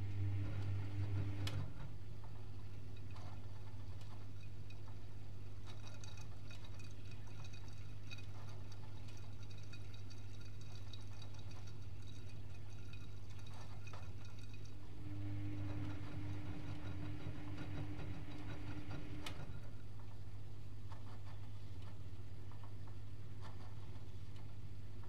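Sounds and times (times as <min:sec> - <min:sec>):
washing machine humming: 0:00.0 - 0:25.0
faint water sounds: 0:02.2 - 0:20.7.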